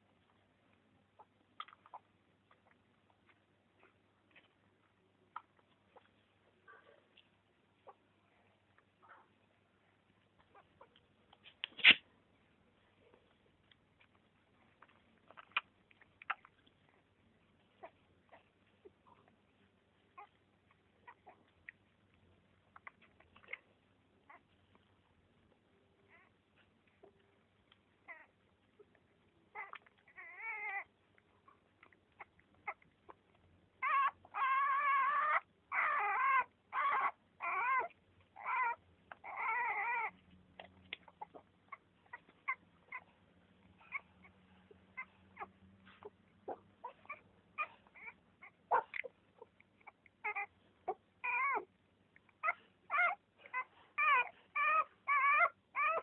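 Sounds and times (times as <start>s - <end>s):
newborn animals crying: 29.5s - 32.9s, 33.7s - 40.3s, 41.0s - 51.8s, 52.4s - 56.0s.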